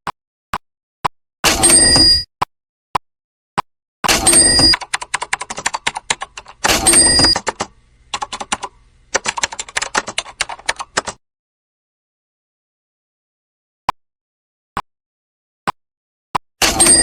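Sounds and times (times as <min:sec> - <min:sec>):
rapid sharp clicks: 0:04.1 - 0:11.2.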